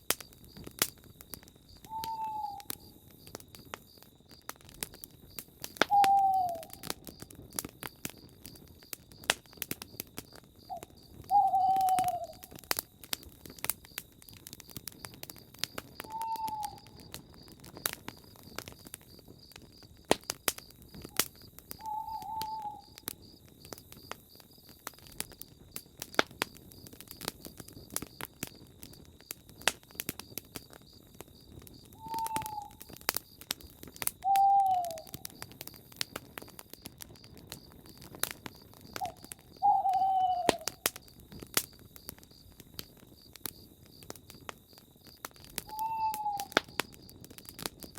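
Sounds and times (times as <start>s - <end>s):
campfire crackling and popping: 0.0s - 47.9s
owl hooting: 1.9s - 2.7s, 5.9s - 6.8s, 10.7s - 12.5s, 16.0s - 17.0s, 21.8s - 23.1s, 32.0s - 32.8s, 34.2s - 35.3s, 39.0s - 40.8s, 45.7s - 46.6s.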